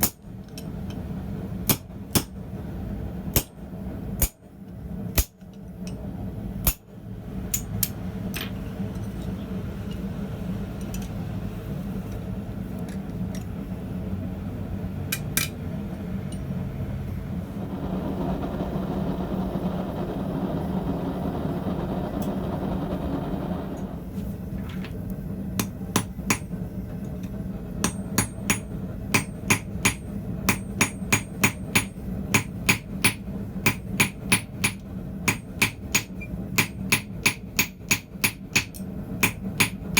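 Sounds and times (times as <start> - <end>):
steady low hum: 0.0 - 39.9
hammer striking steel on anvil: 1.7 - 2.4, 3.3 - 3.6, 7.5 - 8.0, 25.6 - 26.6, 27.8 - 39.9
rushing noise: 17.4 - 24.2.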